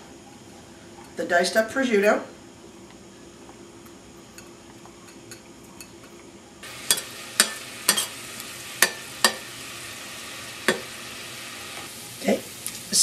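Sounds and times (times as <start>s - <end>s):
meat sizzling in hot oil: 6.6s - 13.0s
spoon knocking against a pan: 6.9s - 8.1s, 8.8s - 9.4s, 10.7s - 10.9s.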